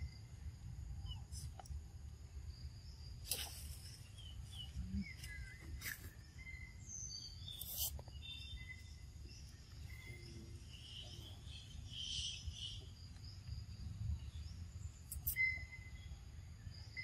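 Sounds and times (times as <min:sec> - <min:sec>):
bird chirps: 0:02.8 - 0:13.6, 0:14.2 - 0:17.0.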